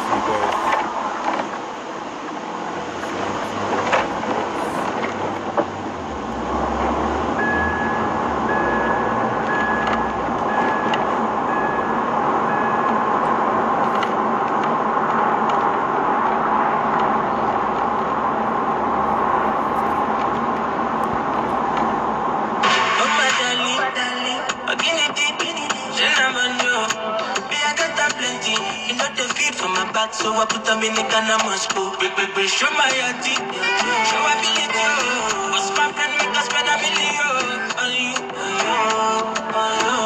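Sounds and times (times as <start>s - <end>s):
short high beeps: 7.4s - 13.0s.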